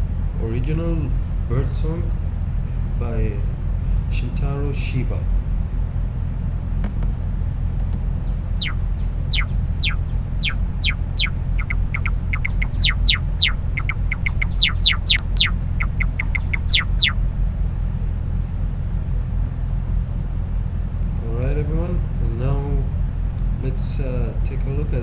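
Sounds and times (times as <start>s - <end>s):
steady low rumble: 0.0s - 25.0s
songbird whistled sweeping notes: 8.6s - 17.2s.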